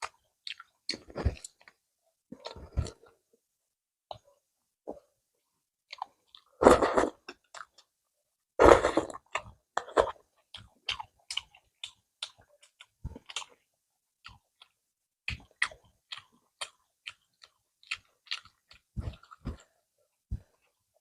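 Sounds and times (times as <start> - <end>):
chewing with wet mouth clicks: 0.0 - 1.8, 9.3 - 13.6, 14.2 - 19.7.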